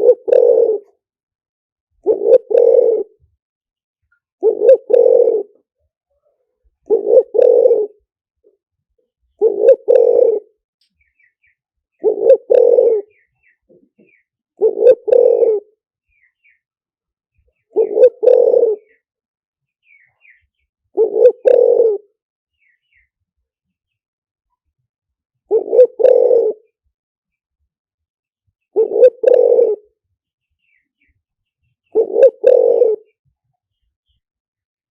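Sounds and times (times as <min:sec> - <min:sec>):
dove cooing: 0:00.0 - 0:01.0, 0:02.0 - 0:03.3, 0:04.4 - 0:05.7, 0:06.8 - 0:08.1, 0:09.4 - 0:10.6, 0:12.0 - 0:15.8, 0:17.6 - 0:19.0, 0:20.0 - 0:22.1, 0:25.5 - 0:26.8, 0:28.7 - 0:30.0, 0:31.9 - 0:33.2
small birds chirping: 0:09.1 - 0:24.7, 0:28.5 - 0:34.3.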